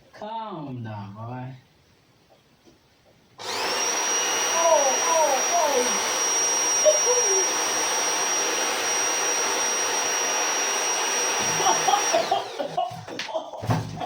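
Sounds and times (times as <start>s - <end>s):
electric fan motor whining: 3.4s - 12.8s.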